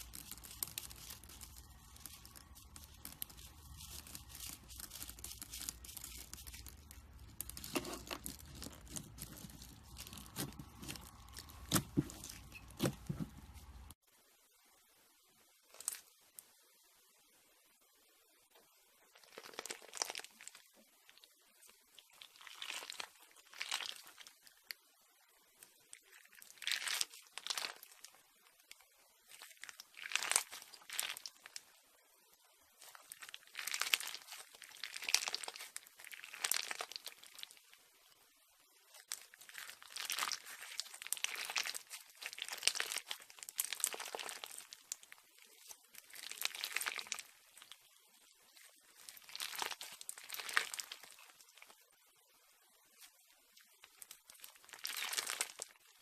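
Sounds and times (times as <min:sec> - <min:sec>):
slime crackling when squeezed: 0:00.0 - 0:13.8, 0:32.8 - 0:37.6, 0:39.0 - 0:47.8, 0:48.9 - 0:51.7, 0:53.8 - 0:55.7.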